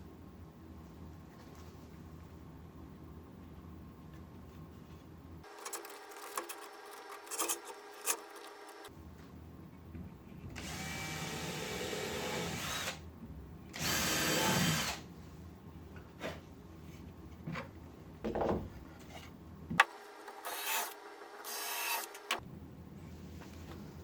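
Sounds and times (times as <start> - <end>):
electric drill running: 10.6 - 13.0, 13.8 - 15.0, 20.5 - 22.2.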